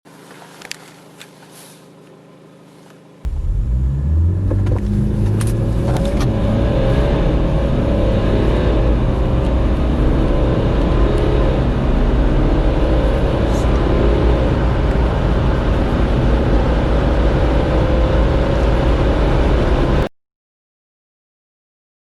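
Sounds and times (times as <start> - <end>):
diesel car engine accelerating hard: 3.2 - 20.1.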